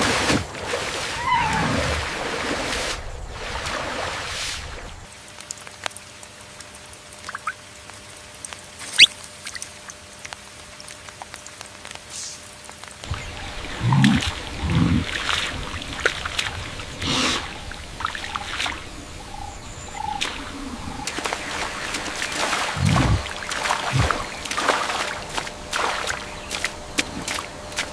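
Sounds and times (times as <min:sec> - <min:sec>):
water splashing and dripping: 0:00.0 - 0:27.9.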